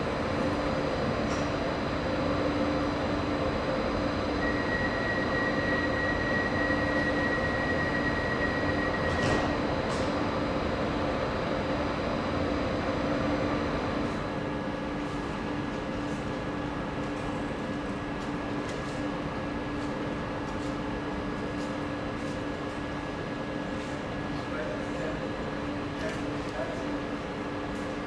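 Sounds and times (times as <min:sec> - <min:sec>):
high steady whine: 0:00.0 - 0:14.8
train electrical hum: 0:00.0 - 0:28.0
ventilation noise: 0:00.0 - 0:28.0.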